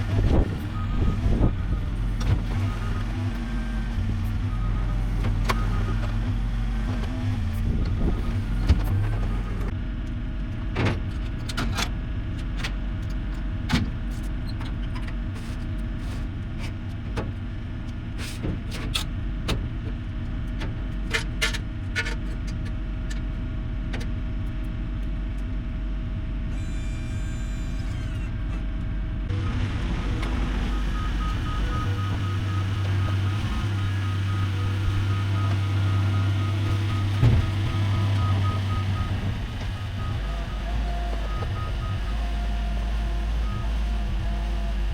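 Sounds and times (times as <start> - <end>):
heavy machine engine running: 0.0 - 44.9
sharp knocks and clunks: 37.0 - 38.2.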